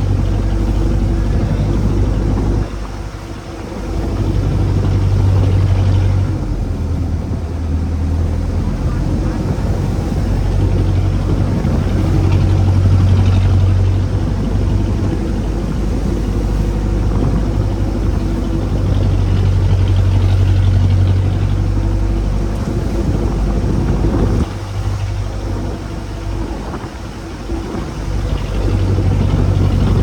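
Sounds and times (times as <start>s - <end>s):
boat engine humming: 0.0s - 30.0s
rushing wind: 0.0s - 30.0s
water noise: 0.0s - 30.0s.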